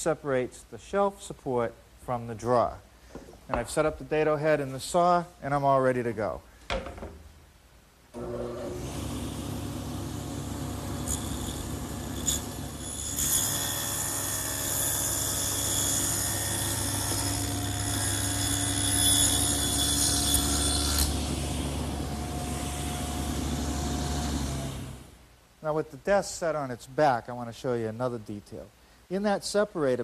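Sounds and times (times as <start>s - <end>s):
table saw running: 8.2s - 25.1s
saw blade cutting wood: 9.9s - 25.1s.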